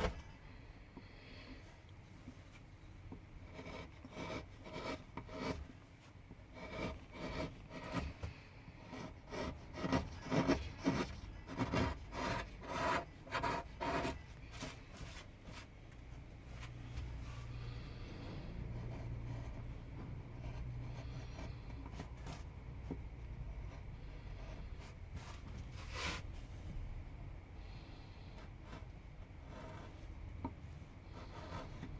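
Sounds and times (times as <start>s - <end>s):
carving tool scraping wood: 3.4s - 5.8s, 6.5s - 15.6s, 17.6s - 22.9s, 23.5s - 26.3s, 28.3s - 30.0s, 31.0s - 31.9s.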